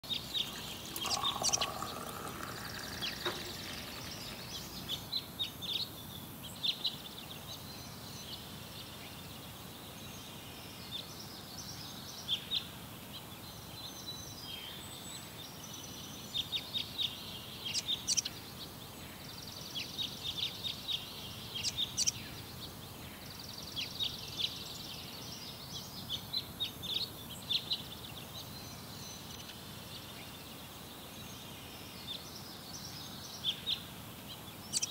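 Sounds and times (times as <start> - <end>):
small birds chirping: 0.0 - 5.6, 34.6 - 34.9.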